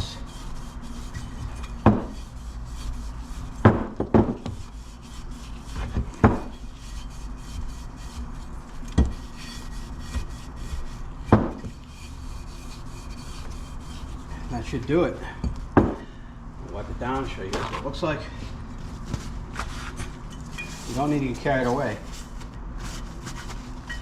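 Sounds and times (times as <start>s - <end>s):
pad scrubbing metal: 0.0s - 14.4s.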